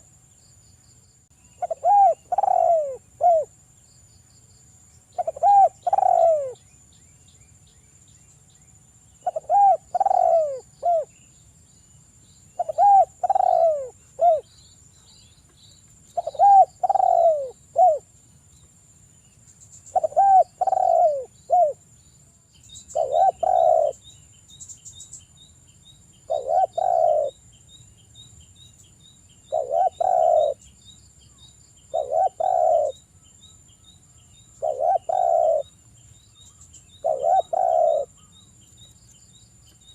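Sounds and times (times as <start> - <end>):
dove cooing: 1.6 - 3.5, 5.2 - 6.6, 9.2 - 11.1, 12.6 - 14.5, 16.2 - 18.1, 19.9 - 21.8, 22.9 - 24.0, 26.3 - 27.4, 29.5 - 30.6, 31.9 - 33.0, 34.6 - 35.7, 37.0 - 38.3.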